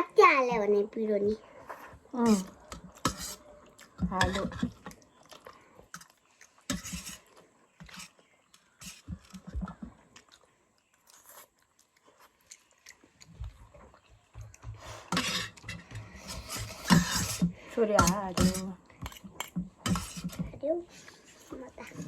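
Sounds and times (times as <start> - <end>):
chewing noodles: 1.4 - 17.4.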